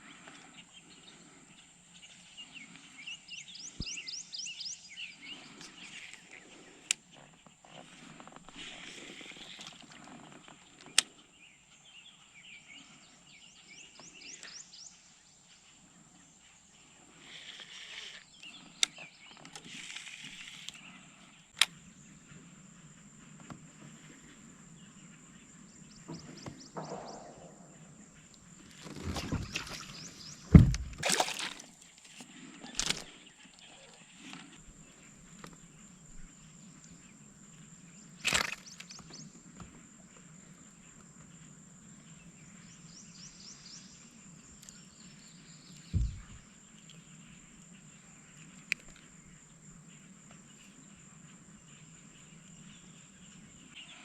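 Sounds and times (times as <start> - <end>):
faint outdoor background: 0.0 - 54.0
fishing gear knocks and clicks: 28.7 - 33.1, 38.2 - 39.0
deep thump against hull: 29.1 - 31.1, 45.9 - 46.4.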